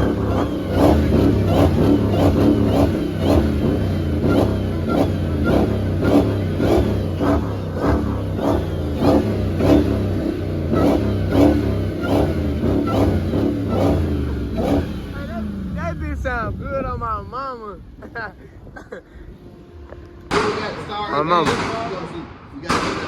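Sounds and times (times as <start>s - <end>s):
music with heavy bass: 0.0s - 16.1s
car engine and road noise: 0.0s - 23.0s.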